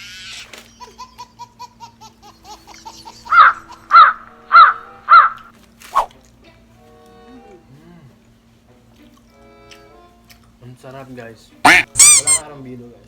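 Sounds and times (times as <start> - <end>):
crow cawing: 3.3 - 5.4, 11.7 - 12.4
soft chirping bird calls: 11.7 - 12.4.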